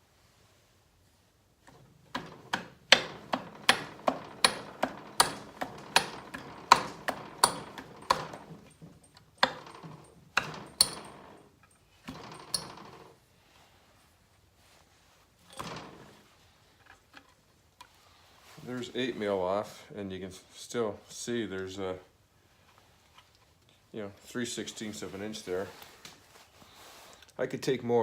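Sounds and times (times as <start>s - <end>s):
hand tool clicking on metal: 2.1s - 13.0s.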